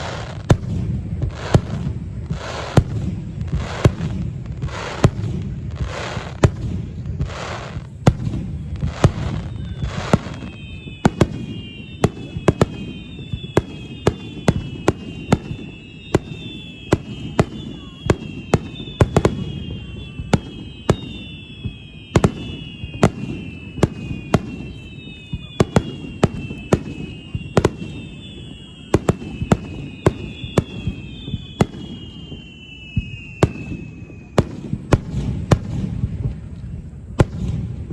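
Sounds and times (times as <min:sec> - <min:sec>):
fireworks bangs: 0:00.0 - 0:37.9
fireworks crackle: 0:00.0 - 0:37.9
falling whistling tones: 0:08.6 - 0:37.2.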